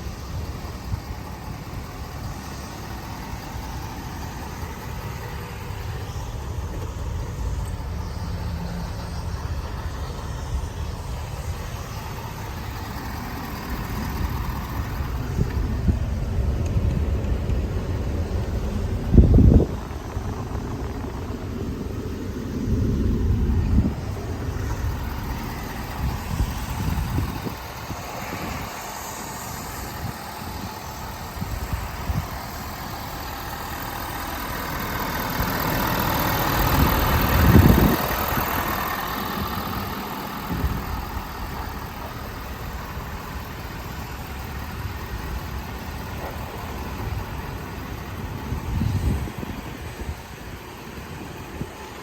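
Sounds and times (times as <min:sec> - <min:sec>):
pickup truck engine idling: 0:00.0 - 0:52.0.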